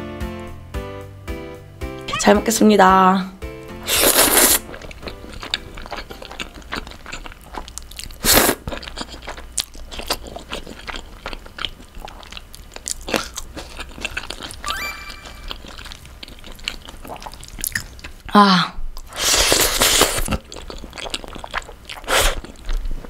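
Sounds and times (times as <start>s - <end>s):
loud slurp: 3.8s - 4.7s
chewing with wet mouth clicks: 4.6s - 14.6s, 15.5s - 18.2s, 19.0s - 22.9s.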